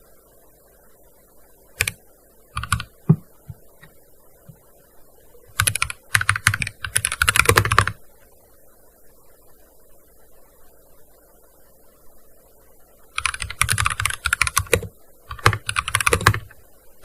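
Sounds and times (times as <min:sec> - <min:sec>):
keyboard typing: 0:01.8 - 0:02.0, 0:02.6 - 0:03.6, 0:05.5 - 0:08.0, 0:13.2 - 0:16.6.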